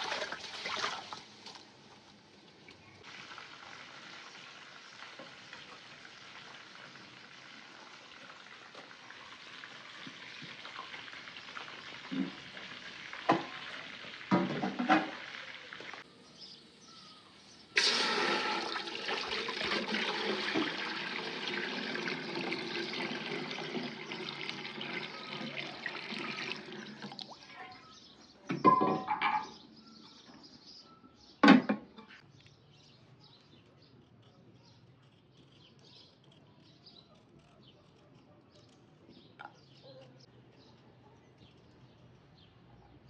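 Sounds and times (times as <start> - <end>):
water hissing in a hot pot: 3.0 - 16.1, 17.8 - 27.1.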